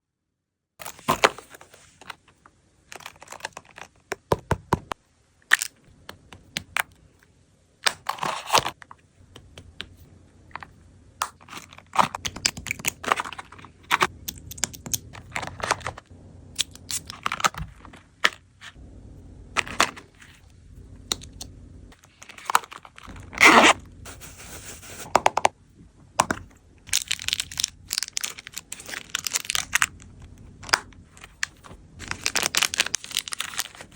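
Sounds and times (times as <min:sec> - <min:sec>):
packaging crinkling: 0:26.9 - 0:33.9.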